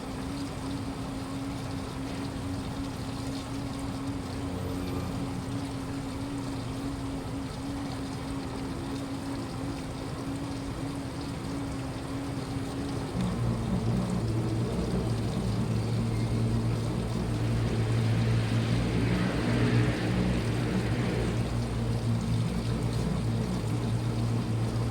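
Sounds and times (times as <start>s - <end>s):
washing machine motor hum: 0.0s - 24.9s
water swishing: 0.0s - 24.9s.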